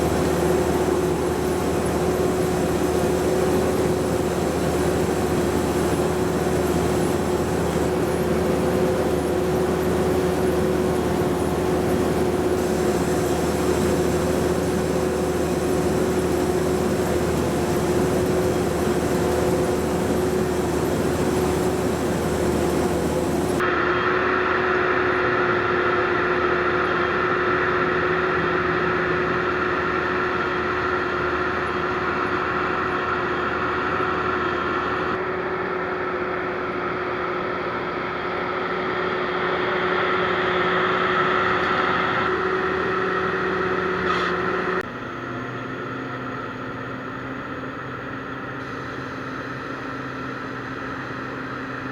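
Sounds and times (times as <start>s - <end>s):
high mechanical whine: 0.0s - 24.0s
combine harvester machinery hum: 0.0s - 51.9s.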